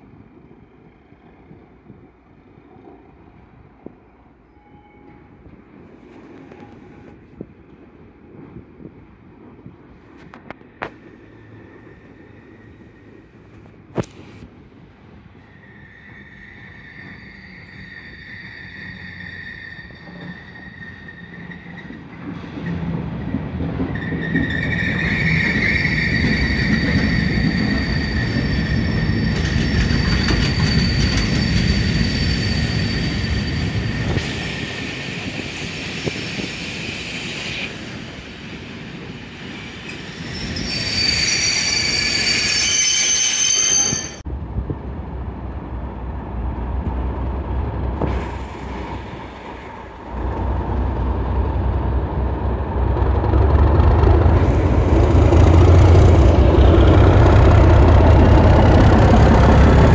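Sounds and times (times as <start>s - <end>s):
train wheels squealing: 3.9s - 5.5s, 10.7s - 13.6s, 15.3s - 23.0s, 23.8s - 44.3s
diesel locomotive engine rumble: 44.0s - 59.9s.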